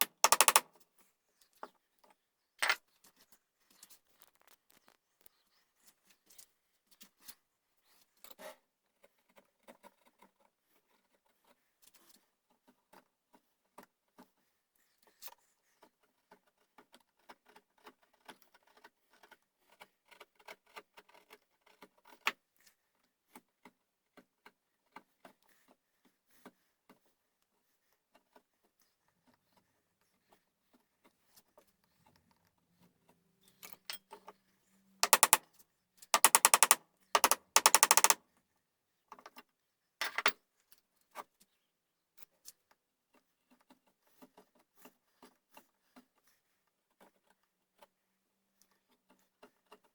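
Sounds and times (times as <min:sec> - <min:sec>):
light taps and clicks: 0:00.0 - 0:00.6, 0:35.0 - 0:35.4, 0:36.2 - 0:38.2.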